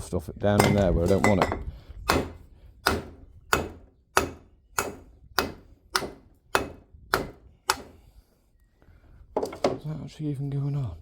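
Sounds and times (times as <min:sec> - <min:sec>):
hammer striking metal: 0:00.6 - 0:07.9.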